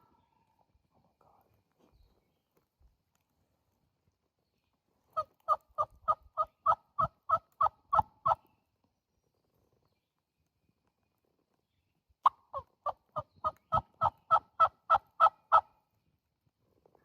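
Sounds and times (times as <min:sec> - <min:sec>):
turkey yelps: 0:05.2 - 0:08.4, 0:12.2 - 0:15.7.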